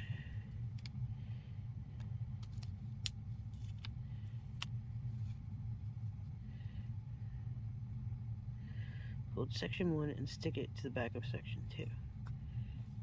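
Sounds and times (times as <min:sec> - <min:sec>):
steady low hum: 0:00.0 - 0:13.0
sticker sheets rustling and peeling: 0:02.4 - 0:05.4.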